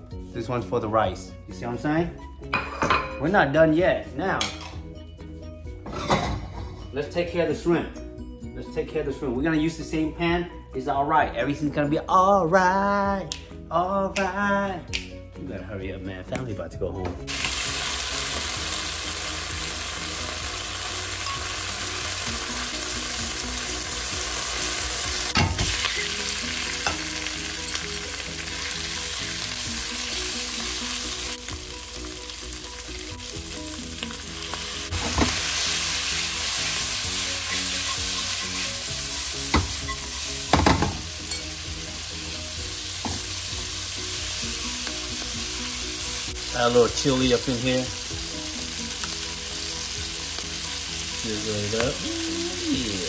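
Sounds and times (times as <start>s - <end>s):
shrimp and onions sizzling: 17.2s - 53.0s.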